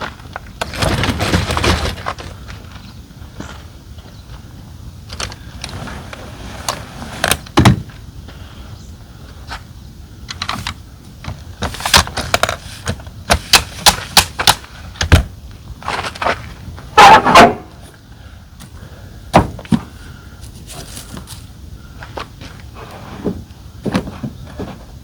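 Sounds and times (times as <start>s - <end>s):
tent frame clicks and knocks: 0.0s - 2.3s, 10.3s - 17.6s.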